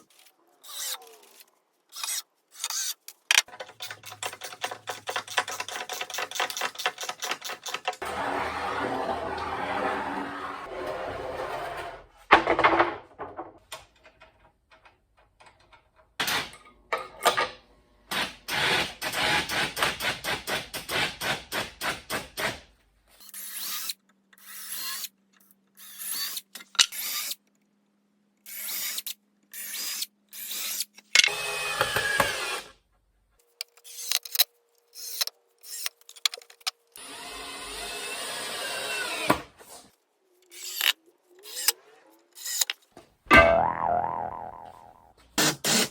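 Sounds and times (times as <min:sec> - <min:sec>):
power tools on wooden boards: 0:00.0 - 0:13.5, 0:18.1 - 0:25.1, 0:28.5 - 0:32.8, 0:33.6 - 0:43.0, 0:45.4 - 0:45.9.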